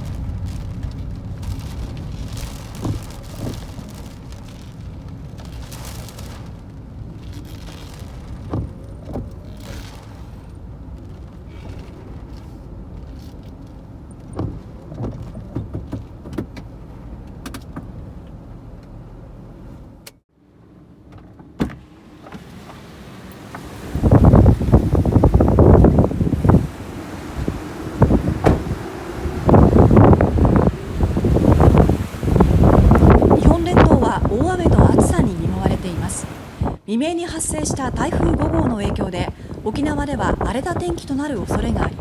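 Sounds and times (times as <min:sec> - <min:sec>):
strong wind rumbling on microphone: 0:00.0 - 0:17.1, 0:23.4 - 0:42.0
short thumps: 0:14.2 - 0:16.8, 0:28.1 - 0:28.8.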